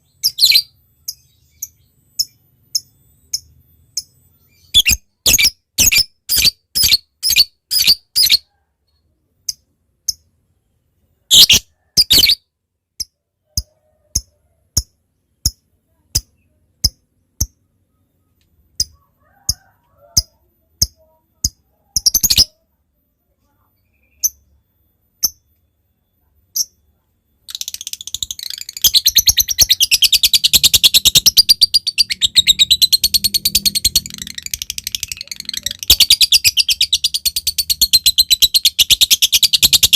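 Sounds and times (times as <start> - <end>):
lovebird chirping: 0.0 - 39.9
lovebird chattering trill: 0.1 - 8.5, 11.3 - 12.4, 27.5 - 39.9.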